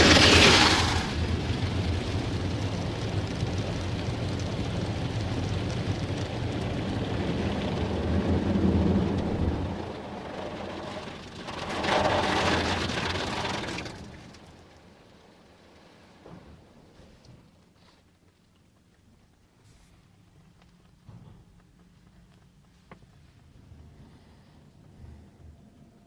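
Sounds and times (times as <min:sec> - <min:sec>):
water spray drumming on car: 0:00.0 - 0:16.4
car wash machinery rumble: 0:00.0 - 0:17.6.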